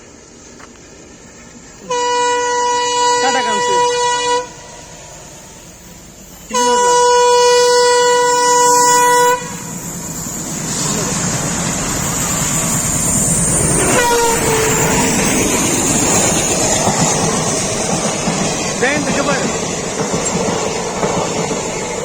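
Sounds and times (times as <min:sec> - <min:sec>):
train rumble: 0:00.0 - 0:22.0
train horn blast: 0:01.8 - 0:04.8, 0:06.5 - 0:09.7, 0:13.8 - 0:15.5.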